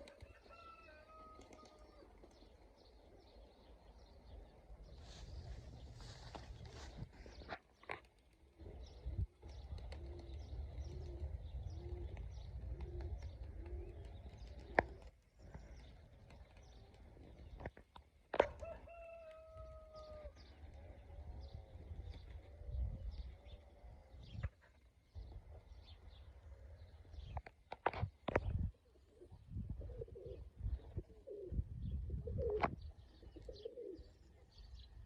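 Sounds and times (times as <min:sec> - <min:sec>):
long level bird call: 0:00.0 - 0:07.5, 0:08.6 - 0:17.7, 0:18.6 - 0:24.6
pigeons cooing: 0:08.5 - 0:17.6, 0:28.9 - 0:34.3
wind buffeting microphone: 0:20.9 - 0:24.6, 0:28.0 - 0:33.1.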